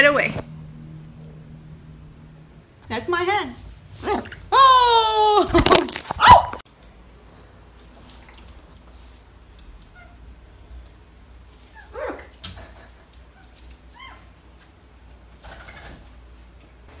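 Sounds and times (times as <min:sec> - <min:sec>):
parrot calls: 0:11.7 - 0:12.8.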